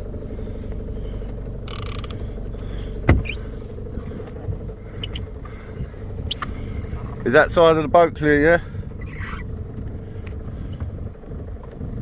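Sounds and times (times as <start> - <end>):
steady low rumble: 0.0 - 12.0
fishing reel clicking and creaking: 1.2 - 3.7.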